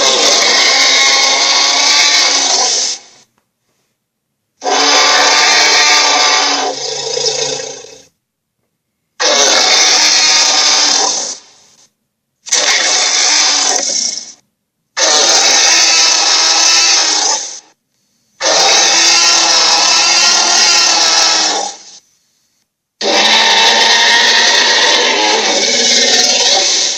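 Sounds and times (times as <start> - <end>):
dragon roars: 0.0 - 3.0, 4.6 - 8.1, 9.2 - 11.4, 12.5 - 14.4, 15.0 - 17.6, 18.4 - 21.9, 23.0 - 26.9.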